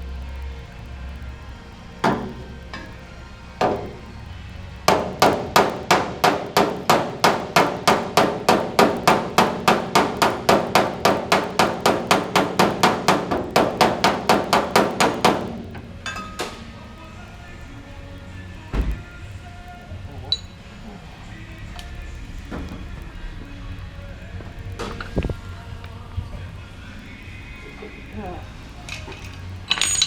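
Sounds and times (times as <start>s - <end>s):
hammer tapping metal: 4.9s - 16.6s.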